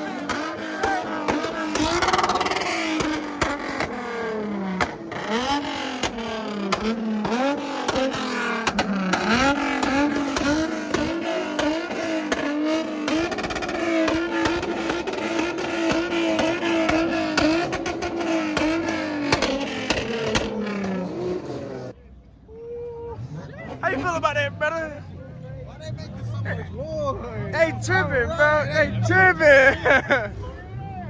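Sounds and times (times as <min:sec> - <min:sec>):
exhaust pops and cracks: 0:00.0 - 0:21.6
car engine revving hard: 0:00.0 - 0:22.0.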